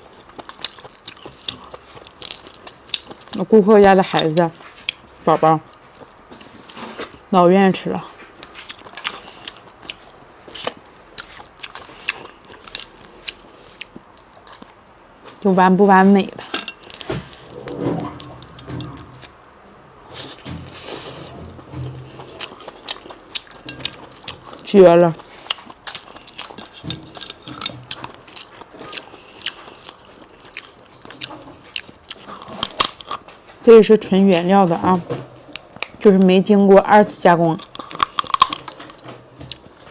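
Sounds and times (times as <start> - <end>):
person chewing seafood: 0.0 - 3.4, 8.3 - 15.4, 16.7 - 33.6, 37.6 - 39.9.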